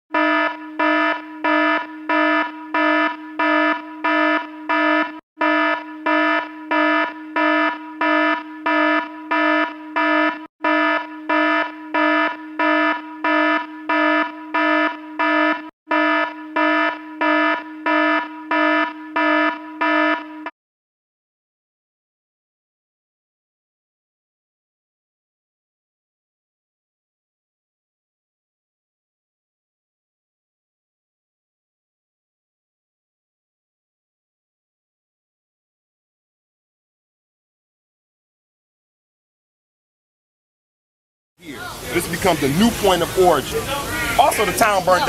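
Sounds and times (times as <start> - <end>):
fire alarm pulsing buzzy horn: 0.1 - 20.6, 41.4 - 45.0.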